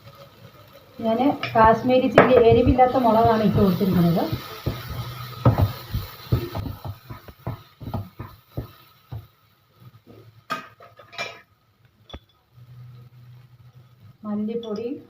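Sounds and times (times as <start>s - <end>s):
spoon stirring in cooking pan: 0.0s - 11.4s.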